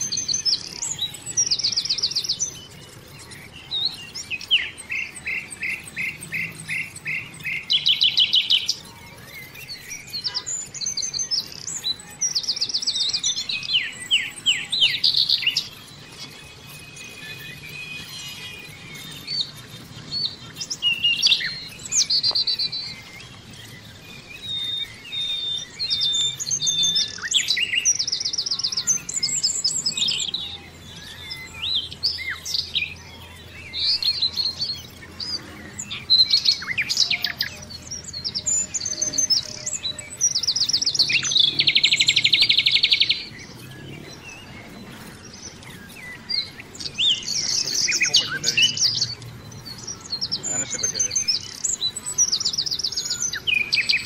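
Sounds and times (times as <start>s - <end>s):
rapid bird trill: 0.0s - 54.0s
songbirds singing and calling: 0.0s - 54.0s.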